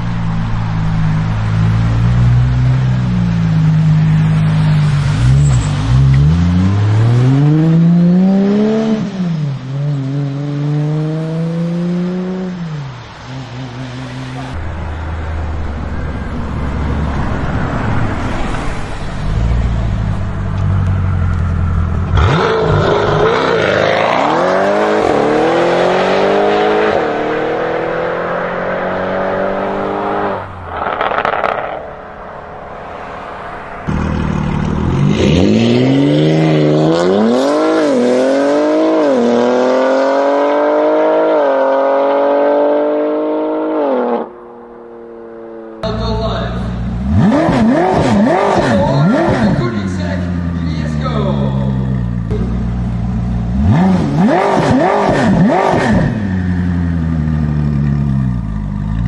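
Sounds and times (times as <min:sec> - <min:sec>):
car engine accelerating: 0:00.0 - 0:59.0
low engine rumble: 0:13.9 - 0:22.2.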